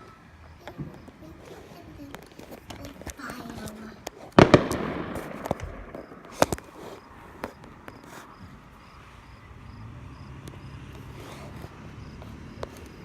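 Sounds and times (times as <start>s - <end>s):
crickets chirping: 0.0s - 13.0s
firework bangs: 2.1s - 9.0s.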